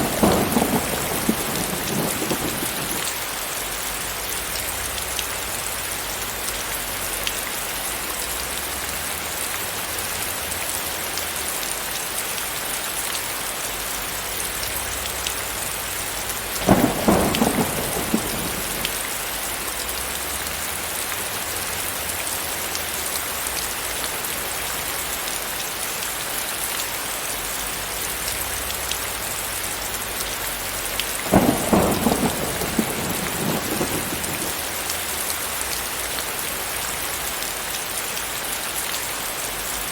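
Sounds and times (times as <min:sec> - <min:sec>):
thunder claps: 0:00.0 - 0:03.2, 0:16.5 - 0:19.9, 0:31.2 - 0:35.0
steady rain falling: 0:00.0 - 0:39.9.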